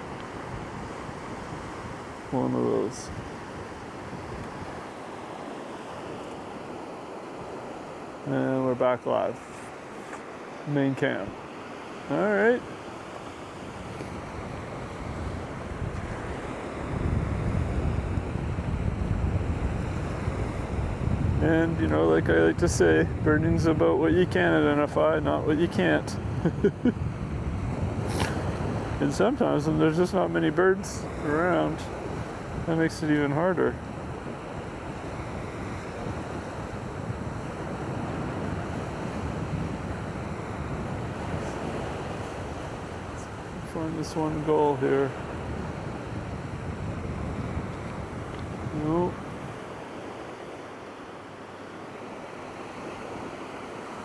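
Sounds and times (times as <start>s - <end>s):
wind buffeting microphone: 0.0s - 4.9s, 13.4s - 50.2s
shoreline waves: 0.0s - 54.0s.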